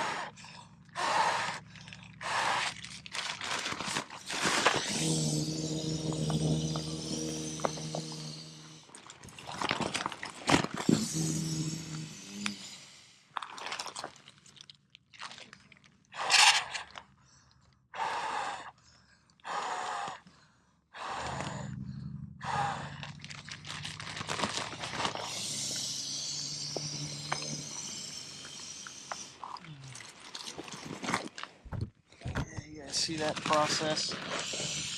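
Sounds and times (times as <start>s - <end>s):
nylon sack crinkling: 2.7s - 5.0s, 23.1s - 25.4s.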